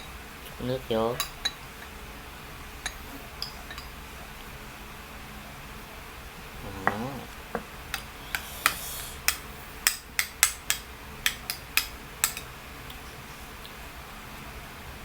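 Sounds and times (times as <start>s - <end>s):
utensils knocking against cookware: 6.8s - 12.5s.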